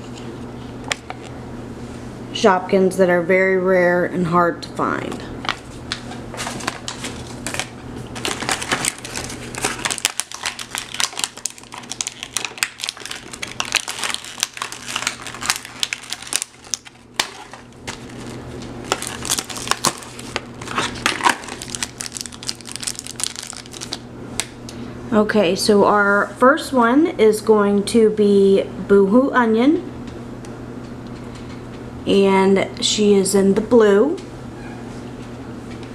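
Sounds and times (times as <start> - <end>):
plastic packaging crinkling: 5.5 - 24.1.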